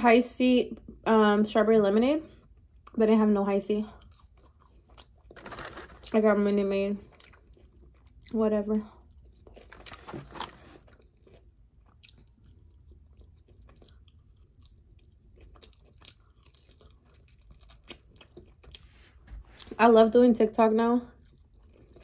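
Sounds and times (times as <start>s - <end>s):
person chewing and biting food: 4.0s - 6.1s, 9.0s - 19.8s, 21.2s - 22.0s.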